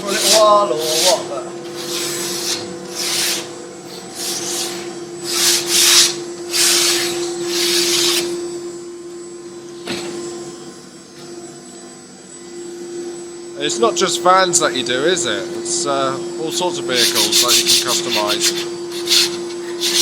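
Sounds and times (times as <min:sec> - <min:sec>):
hand sanding plywood: 0:00.0 - 0:08.4, 0:16.5 - 0:20.0
steady machine hum: 0:00.0 - 0:20.0.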